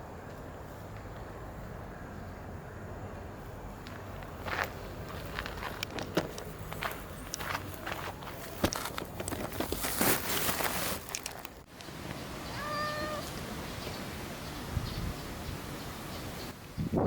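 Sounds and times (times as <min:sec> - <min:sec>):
rustling noise: 0:03.4 - 0:12.2
cat meowing: 0:12.5 - 0:13.3.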